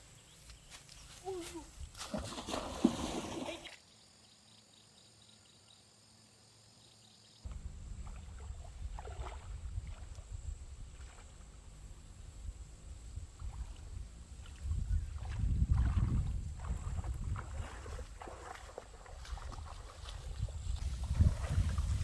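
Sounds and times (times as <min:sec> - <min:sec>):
low fluctuating rumble: 0:07.5 - 0:17.2.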